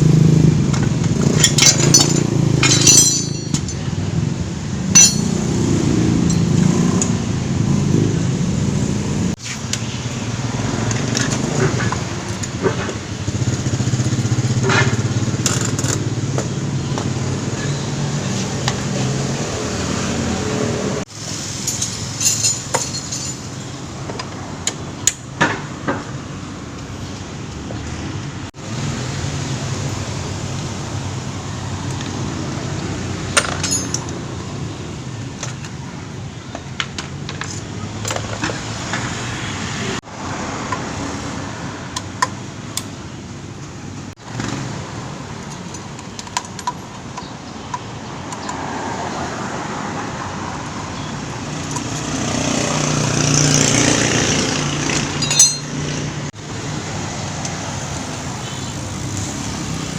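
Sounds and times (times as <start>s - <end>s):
metal tools clinking: 1.2s - 4.0s, 4.9s - 5.6s, 21.6s - 23.7s, 33.3s - 34.3s, 55.0s - 56.0s.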